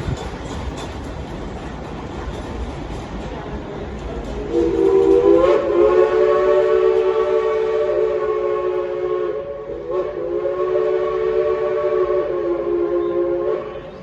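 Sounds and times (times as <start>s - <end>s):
train whistle blowing: 4.4s - 14.0s.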